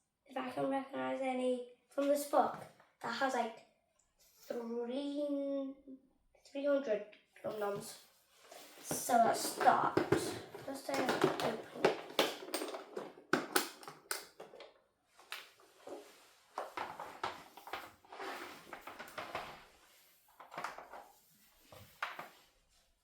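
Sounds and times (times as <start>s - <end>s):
packaging rustling and crinkling: 8.4s - 22.6s.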